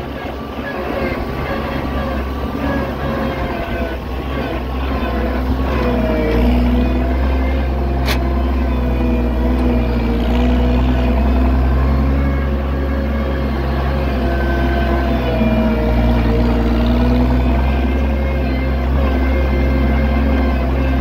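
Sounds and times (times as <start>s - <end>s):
tractor engine running: 0.0s - 21.0s
sharp click: 8.0s - 8.3s.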